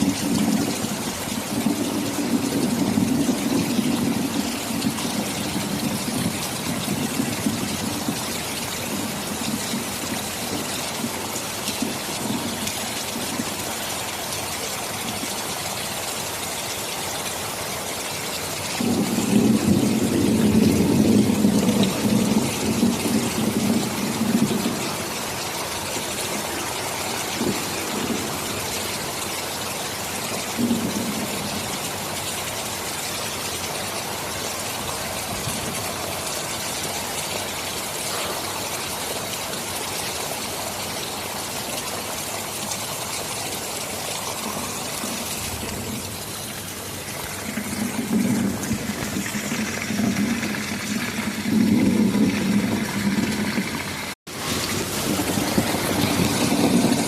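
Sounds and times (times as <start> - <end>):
low rumble of thunder: 0.0 - 13.8, 18.8 - 32.3, 34.7 - 36.3, 44.2 - 57.0
heavy rain falling: 0.0 - 57.0.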